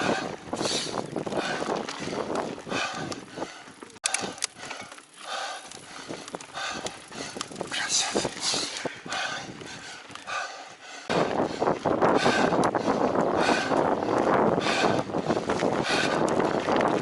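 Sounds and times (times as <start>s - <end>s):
bike tyres and drivetrain on dirt: 0.0s - 17.0s
bike rattling clicks: 0.6s - 10.5s.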